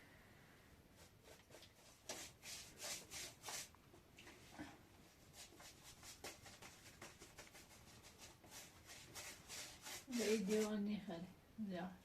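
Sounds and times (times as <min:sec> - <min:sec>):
faint scraping strokes: 0:01.0 - 0:10.9.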